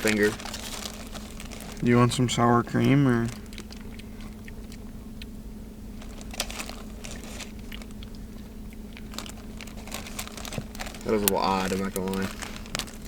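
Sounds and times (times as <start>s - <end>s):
low hum: 0.0s - 13.0s
lip smacks and mouth clicks: 3.4s - 5.4s, 7.6s - 9.4s.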